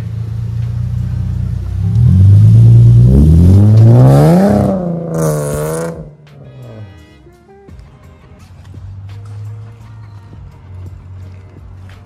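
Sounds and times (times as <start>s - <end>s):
car engine accelerating hard: 0.0s - 6.9s.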